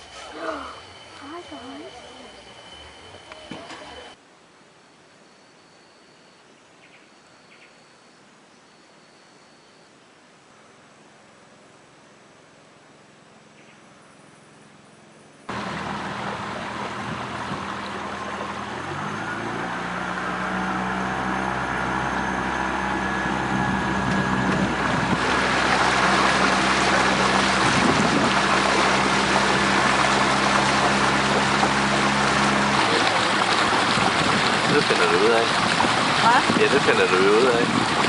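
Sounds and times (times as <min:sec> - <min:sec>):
motorboat engine humming: 0:00.0 - 0:04.2, 0:12.4 - 0:38.0
rushing water noise: 0:15.5 - 0:38.0.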